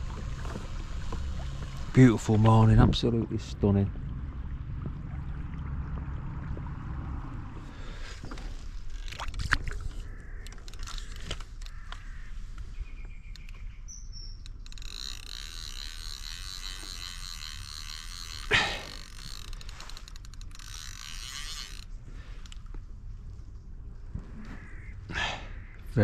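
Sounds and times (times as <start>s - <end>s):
birds chirping: 9.8s - 15.4s
rapid chirring: 13.3s - 22.4s.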